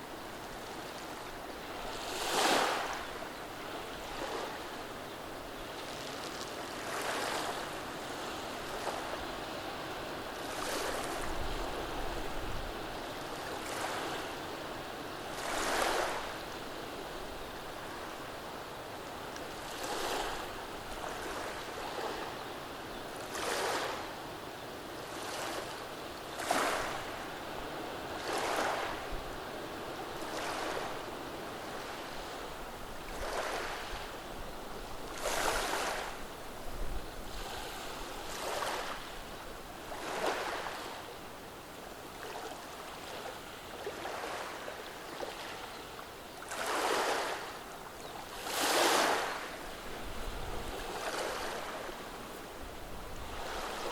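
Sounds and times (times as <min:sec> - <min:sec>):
waves breaking with hissing surge: 0:00.0 - 0:05.4, 0:25.0 - 0:41.6, 0:46.5 - 0:47.6, 0:48.3 - 0:53.9
waves washing over stones: 0:46.5 - 0:47.6, 0:48.3 - 0:52.1.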